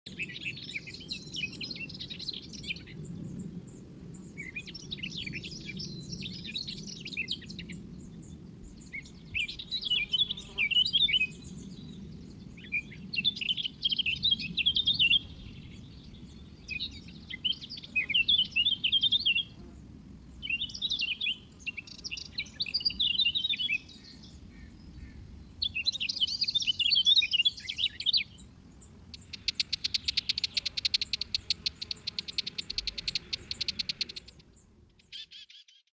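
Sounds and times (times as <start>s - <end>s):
small bird twittering: 29.2s - 34.4s.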